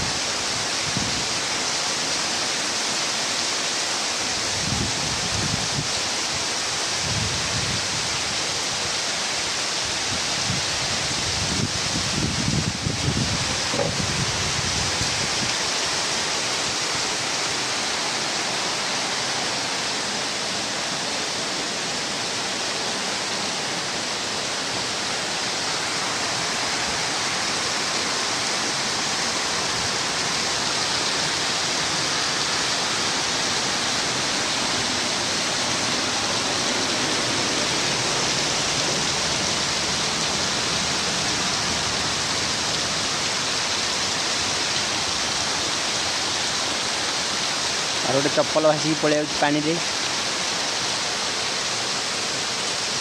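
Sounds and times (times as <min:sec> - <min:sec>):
heavy rain pouring: 0:00.0 - 0:53.0.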